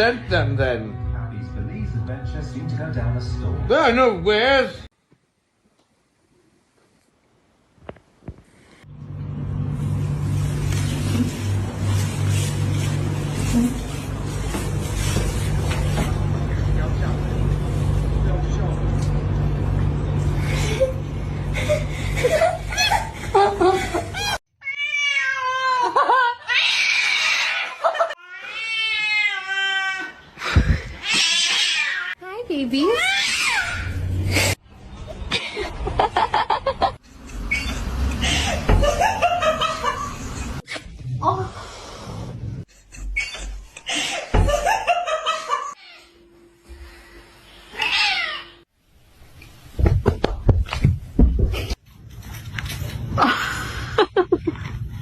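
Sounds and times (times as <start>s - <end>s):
cat meowing: 24.6s - 25.6s, 47.8s - 48.6s
cat yowling: 24.6s - 25.9s, 26.5s - 30.2s, 33.0s - 34.0s, 47.7s - 48.6s.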